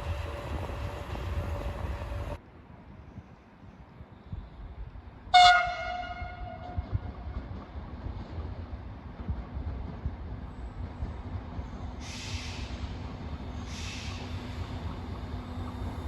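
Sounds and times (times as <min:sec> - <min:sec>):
train wheels rumbling on track: 0:00.0 - 0:16.0
brief hissing bursts: 0:12.0 - 0:13.0, 0:13.6 - 0:14.7.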